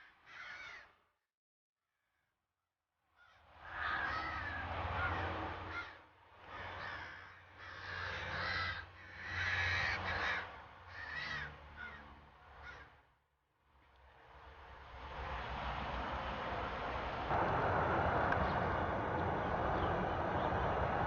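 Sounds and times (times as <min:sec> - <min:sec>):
crows cawing harshly: 0:00.0 - 0:01.0, 0:03.2 - 0:13.0.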